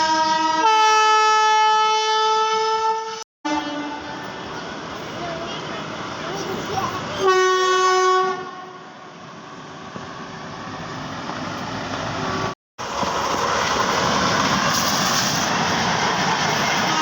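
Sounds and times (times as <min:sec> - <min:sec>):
train wheels rumbling on rail: 0:09.9 - 0:17.0.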